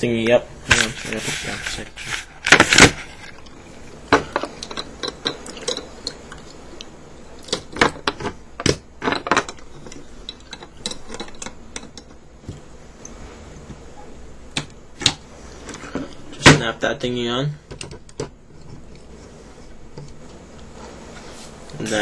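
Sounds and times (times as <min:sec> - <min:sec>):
hard plastic parts clicking and knocking: 0:07.4 - 0:12.6, 0:17.6 - 0:18.9.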